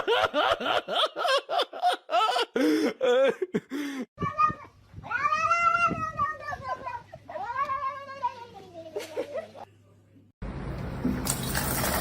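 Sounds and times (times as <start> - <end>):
person giggling: 0.0 - 4.1.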